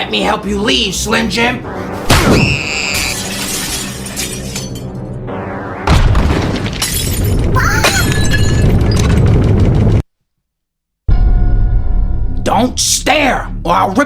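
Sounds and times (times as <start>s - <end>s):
background music: 0.0s - 6.8s, 11.1s - 14.0s
crash with glass shattering: 2.1s - 5.1s, 5.9s - 9.4s.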